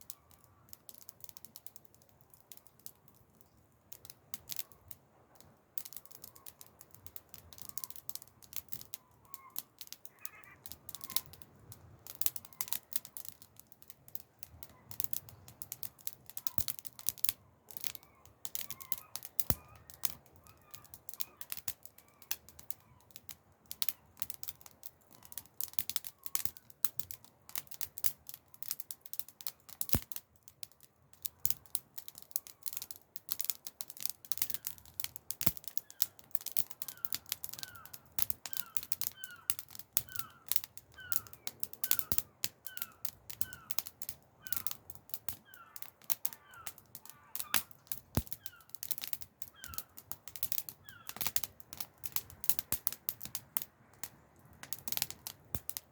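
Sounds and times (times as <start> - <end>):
campfire crackling: 0.0 - 55.9.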